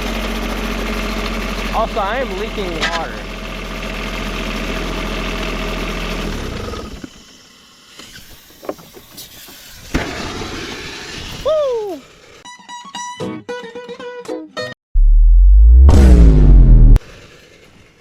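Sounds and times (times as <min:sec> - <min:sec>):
small diesel engine droning: 0:00.0 - 0:07.8
hiss: 0:07.2 - 0:12.4
short falling whine: 0:15.0 - 0:17.0.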